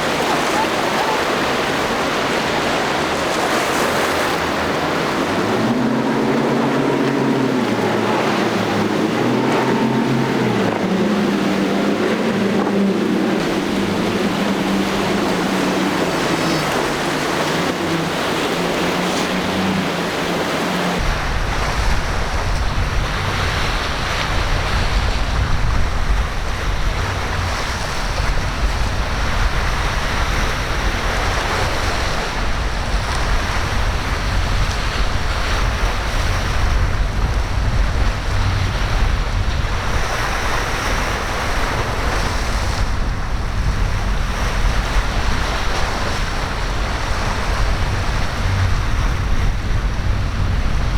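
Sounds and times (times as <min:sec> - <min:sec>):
ocean surf breaking: 0:00.0 - 0:50.9
wind rumbling on microphone: 0:00.0 - 0:50.9.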